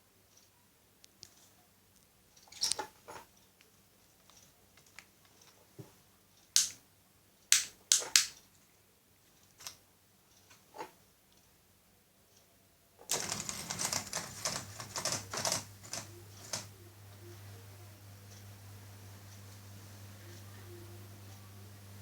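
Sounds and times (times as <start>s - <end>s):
ceiling fan faint hum: 0.0s - 22.0s
sharp irregular fan clicks: 6.5s - 6.8s, 7.5s - 8.4s, 13.1s - 17.5s.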